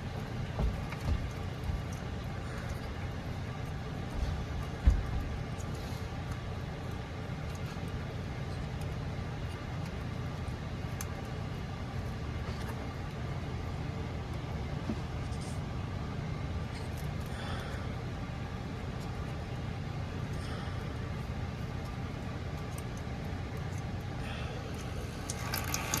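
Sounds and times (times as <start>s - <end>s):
low mechanical hum: 0.0s - 26.0s
faint clicks and taps: 0.2s - 13.2s.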